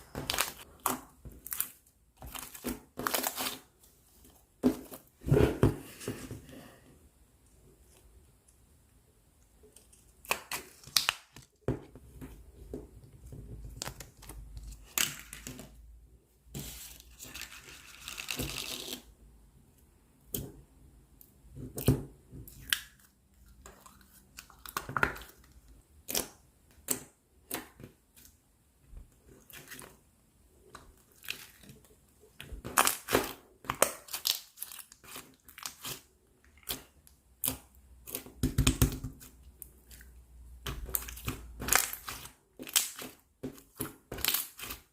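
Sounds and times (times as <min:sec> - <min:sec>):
slime popping and crackling: 0:40.6 - 0:44.9.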